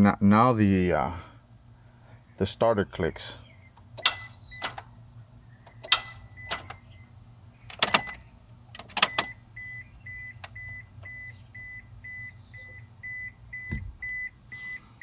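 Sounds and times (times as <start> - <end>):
car starter clicking: 3.8 - 4.9, 5.7 - 6.8, 7.7 - 9.4.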